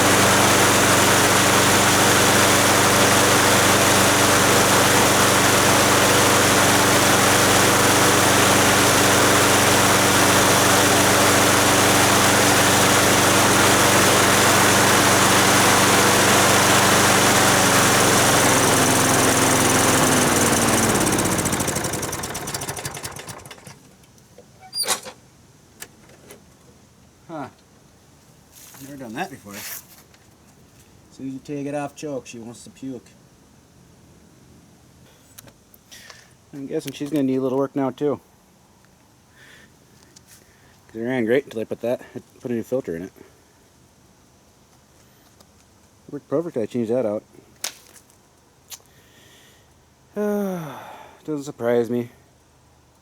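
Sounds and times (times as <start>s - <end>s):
lawn mower engine running: 0.0s - 23.9s.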